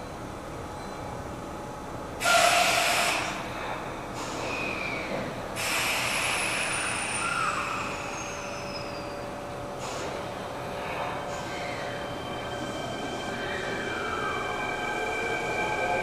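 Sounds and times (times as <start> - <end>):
electric train humming: 1.2 - 16.0
air hissing: 5.6 - 8.5.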